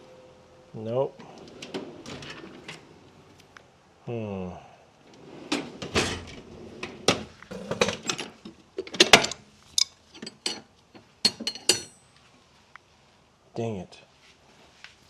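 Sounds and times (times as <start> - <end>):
metal hand tools clinking: 9.1 - 12.1.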